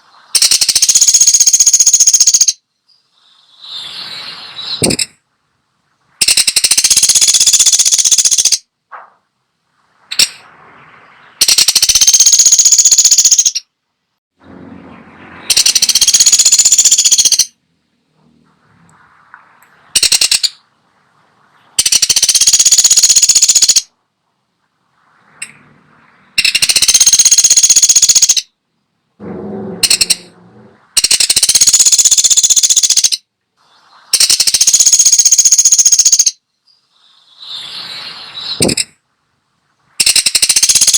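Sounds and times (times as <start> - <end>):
woodpecker rattling calls: 0.4 - 2.6, 4.7 - 5.2, 6.2 - 8.7, 11.4 - 13.7, 15.4 - 17.6, 19.9 - 20.6, 21.8 - 23.9, 26.4 - 28.5, 29.7 - 30.3, 31.0 - 33.3, 34.2 - 37.6, 38.4 - 39.0, 40.0 - 40.9.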